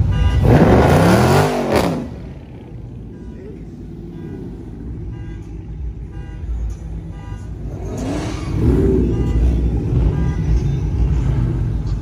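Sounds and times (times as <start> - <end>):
car engine revving: 0.0 - 5.1, 7.5 - 12.0.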